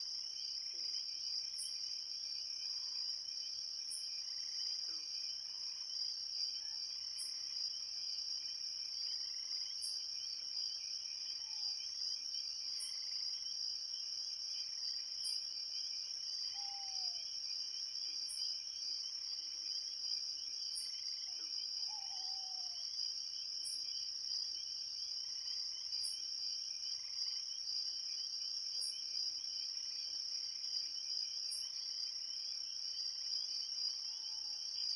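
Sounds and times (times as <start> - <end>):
insects trilling: 16.5 - 17.4, 20.8 - 22.9.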